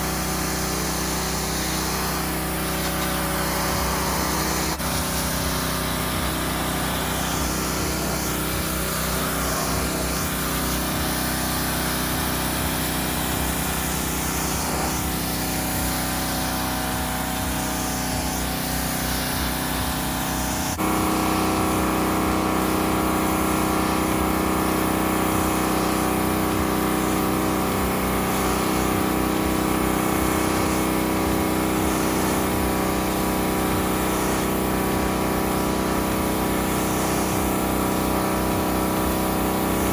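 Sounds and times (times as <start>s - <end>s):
pressure washer running: 0.0s - 39.9s
water jet hissing: 0.0s - 39.9s.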